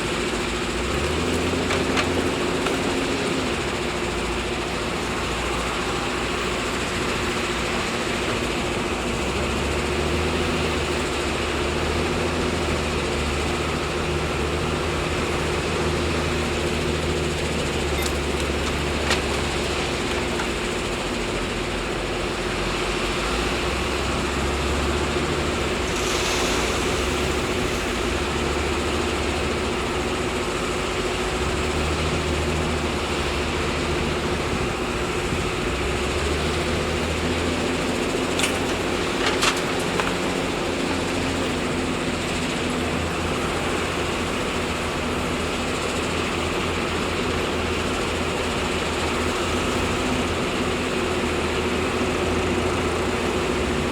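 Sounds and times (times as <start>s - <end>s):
diesel engine rumble: 0.0s - 53.9s
steady whine: 16.4s - 42.8s.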